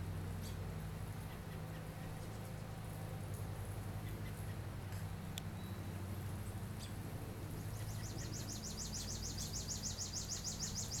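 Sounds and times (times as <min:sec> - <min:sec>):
baby birds chirping: 0:07.6 - 0:11.0.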